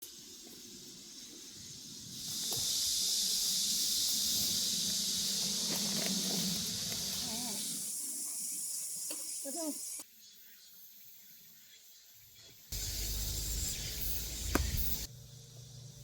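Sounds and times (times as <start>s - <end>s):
cicadas chorus: 0.0s - 16.0s.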